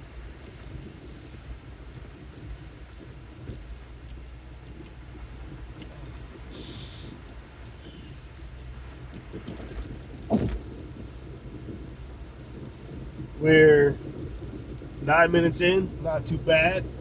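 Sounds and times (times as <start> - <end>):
car engine and tyres rumbling: 0.0 - 17.0
short hiss: 5.9 - 7.2
brief thump: 10.3 - 10.7.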